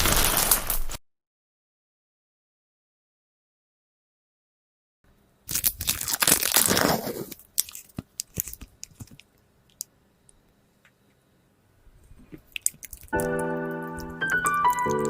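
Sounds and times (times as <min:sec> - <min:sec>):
crunchy slime crackling: 0:00.0 - 0:01.0, 0:05.5 - 0:09.9, 0:12.2 - 0:15.0.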